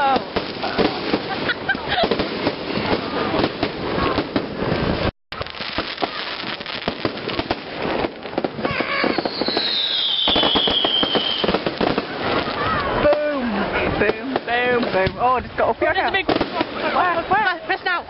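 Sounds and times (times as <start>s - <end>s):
fireworks crackling and banging: 0.0s - 18.0s
whistling firework: 0.6s - 12.7s.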